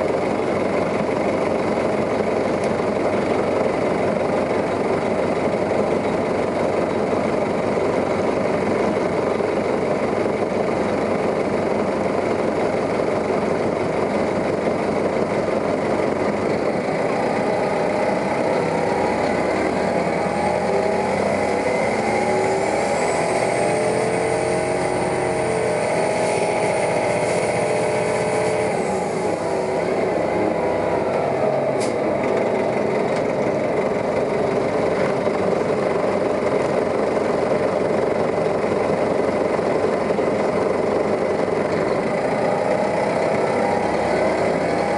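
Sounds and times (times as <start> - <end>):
bus diesel engine running: 0.0 - 44.9.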